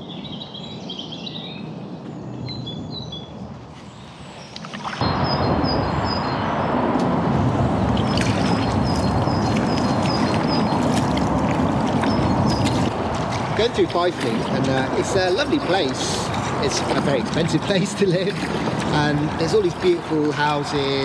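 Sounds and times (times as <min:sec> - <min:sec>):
small birds chirping: 0:00.0 - 0:06.7, 0:07.9 - 0:12.9
loud steady rushing noise: 0:05.0 - 0:21.0.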